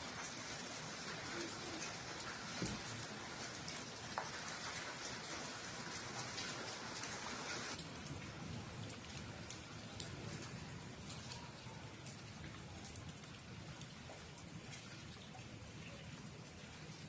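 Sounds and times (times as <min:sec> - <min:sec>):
raindrops ticking close by: 0:00.0 - 0:17.0
steady rain falling: 0:00.0 - 0:17.0.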